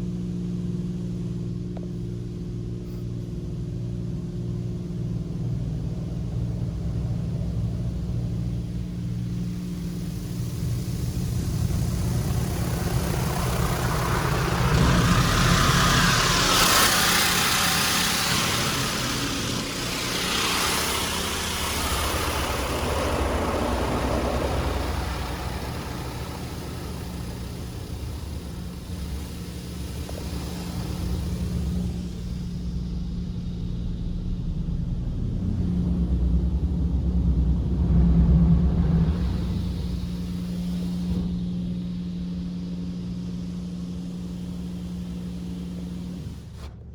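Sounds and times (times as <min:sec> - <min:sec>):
car wash jets hissing: 0:05.4 - 0:35.7, 0:37.4 - 0:46.7
car engine idling: 0:05.5 - 0:41.2.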